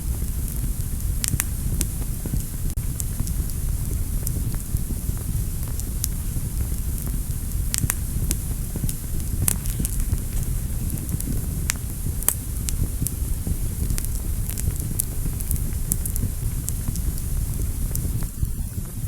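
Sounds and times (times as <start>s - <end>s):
fire crackles and pops: 0.0s - 19.0s
fire flames rumbling: 0.0s - 19.0s.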